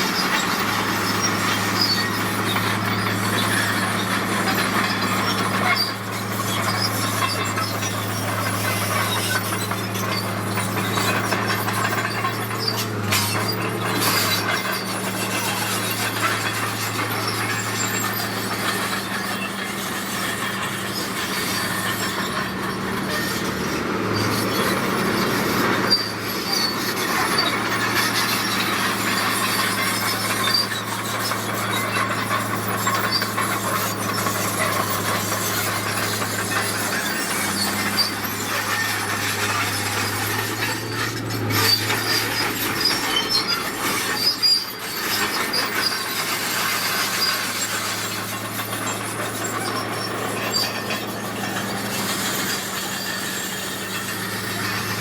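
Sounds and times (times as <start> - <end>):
diesel engine running: 0.0 - 55.0
steel tracks clanking and squealing: 0.0 - 55.0.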